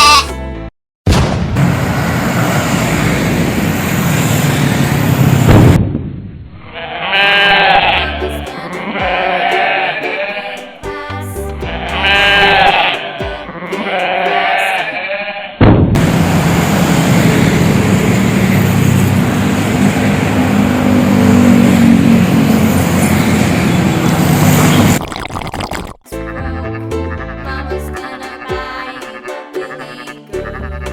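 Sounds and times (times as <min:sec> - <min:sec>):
goat bleating: 0:00.0 - 0:00.3, 0:06.8 - 0:10.7, 0:11.7 - 0:15.5, 0:28.3 - 0:30.9
loud rushing noise: 0:01.1 - 0:06.1, 0:15.7 - 0:25.0.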